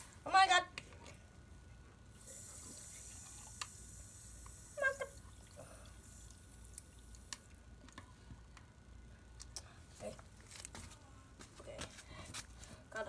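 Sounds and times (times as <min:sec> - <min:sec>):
water gun spraying: 0:02.2 - 0:05.2
water dripping: 0:04.4 - 0:07.6.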